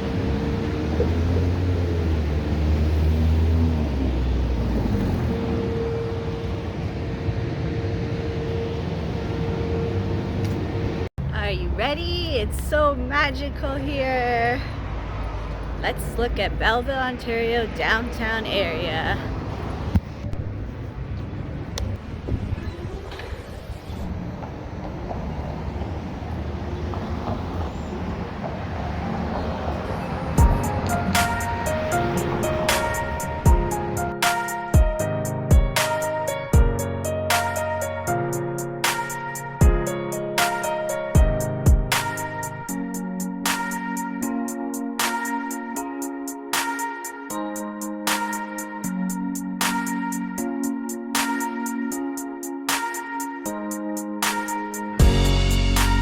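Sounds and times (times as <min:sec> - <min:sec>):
vehicle passing by: 0:00.0 - 0:11.1, 0:14.3 - 0:16.7, 0:19.0 - 0:34.1.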